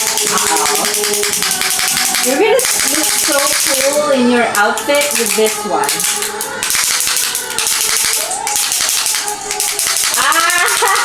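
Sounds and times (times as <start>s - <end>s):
faint background music: 0.0s - 11.0s
gift packaging crinkling: 0.0s - 11.0s
person singing: 0.0s - 11.0s.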